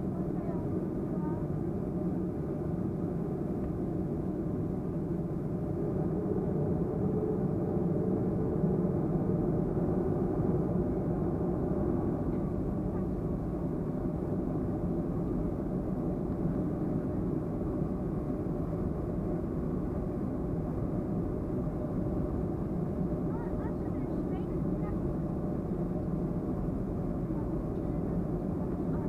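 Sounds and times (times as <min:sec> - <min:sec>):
aircraft cabin drone: 0:00.0 - 0:29.0.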